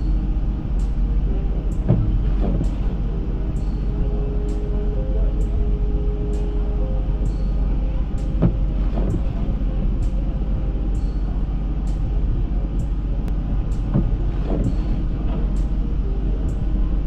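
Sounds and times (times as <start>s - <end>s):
road and engine rumble: 0.0s - 17.0s
short thumps: 1.7s - 2.8s.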